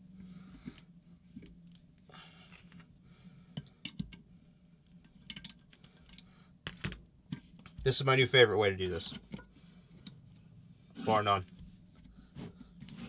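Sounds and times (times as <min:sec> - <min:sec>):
low steady hum: 0:00.0 - 0:13.0
metal tools clicking and tapping: 0:03.6 - 0:04.2, 0:05.0 - 0:06.3.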